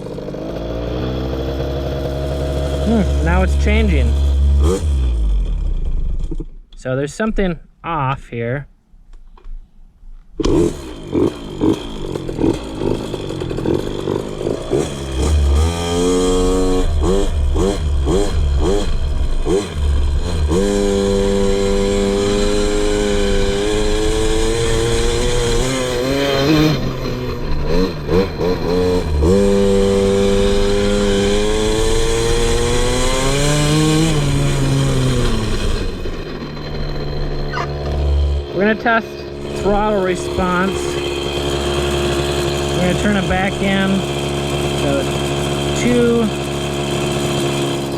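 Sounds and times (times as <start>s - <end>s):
two-stroke engine revving: 0.0s - 6.5s, 10.4s - 47.9s.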